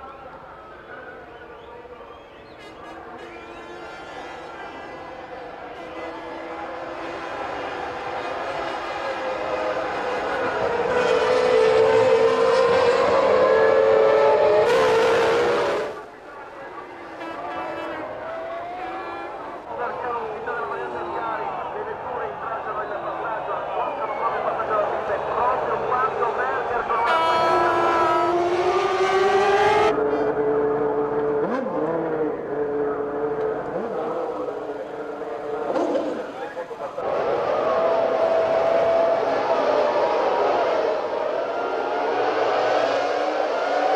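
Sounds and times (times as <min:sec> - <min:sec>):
racing car engine at high revs: 0:04.0 - 0:16.1, 0:17.5 - 0:19.7, 0:24.1 - 0:43.9.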